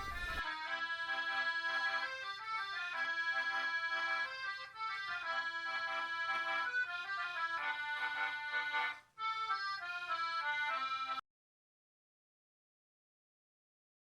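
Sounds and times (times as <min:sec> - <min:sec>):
accordion music: 0:00.0 - 0:11.2.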